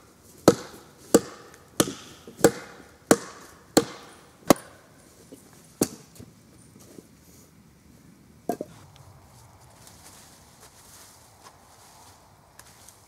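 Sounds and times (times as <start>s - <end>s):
blade chopping wood: 0.4s - 4.8s.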